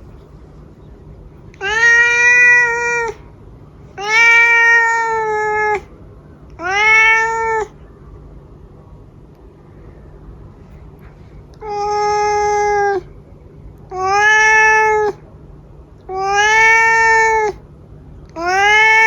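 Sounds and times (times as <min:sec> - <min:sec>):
cat meowing: 0:01.6 - 0:03.2, 0:04.0 - 0:05.9, 0:06.6 - 0:07.8, 0:11.6 - 0:13.1, 0:13.9 - 0:15.2, 0:16.1 - 0:17.6, 0:18.4 - 0:19.0.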